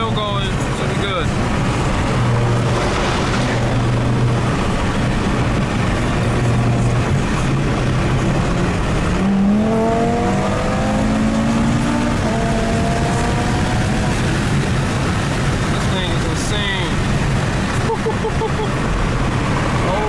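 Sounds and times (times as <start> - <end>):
car engine accelerating: 0.0 - 20.0
road noise: 0.0 - 20.0.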